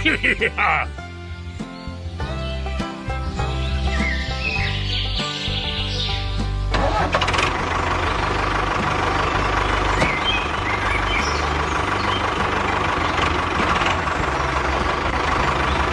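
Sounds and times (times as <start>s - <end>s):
engine running with whine: 5.6s - 15.9s.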